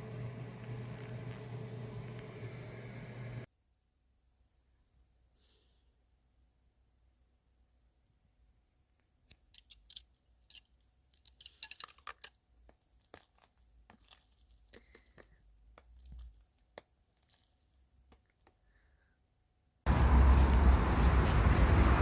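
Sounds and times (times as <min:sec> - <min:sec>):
small hard objects clicking: 0:09.3 - 0:16.9.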